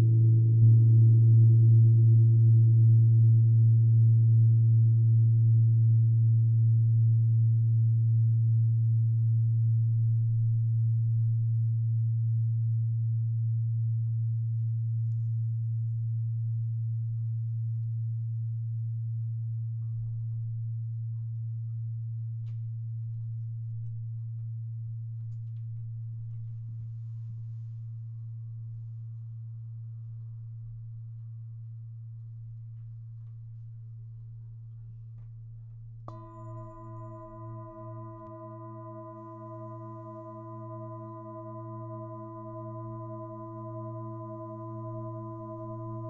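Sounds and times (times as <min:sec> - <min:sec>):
singing bowl tone ringing: 0:36.1 - 0:46.0.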